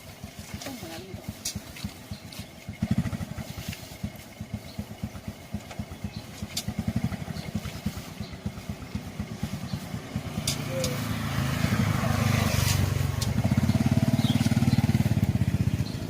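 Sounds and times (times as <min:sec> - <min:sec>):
engine running at low speed: 0:00.0 - 0:16.0.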